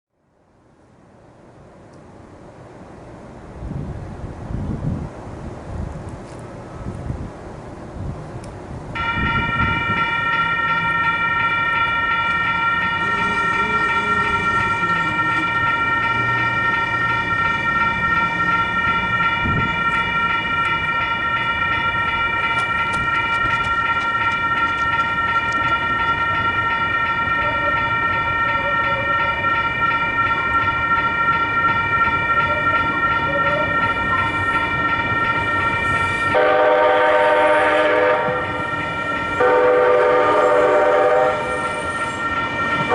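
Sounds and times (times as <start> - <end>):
train horn: 9.0 - 17.8, 32.4 - 42.9
railroad crossing bell ringing: 9.0 - 42.9.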